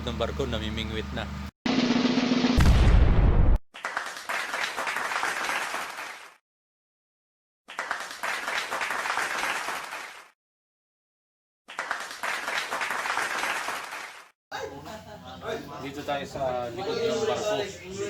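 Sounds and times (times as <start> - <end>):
crowd clapping: 3.8 - 6.4, 7.7 - 10.4, 11.7 - 14.3.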